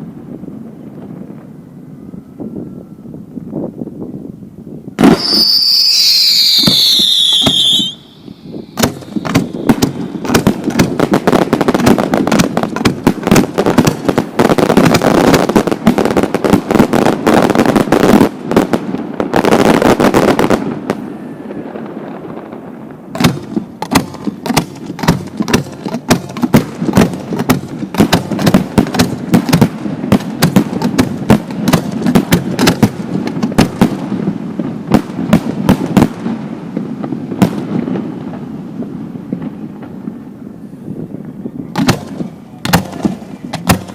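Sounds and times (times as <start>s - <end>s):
firework whistle falling in pitch: 5.0s - 10.2s
fireworks bangs and pops: 5.0s - 43.9s.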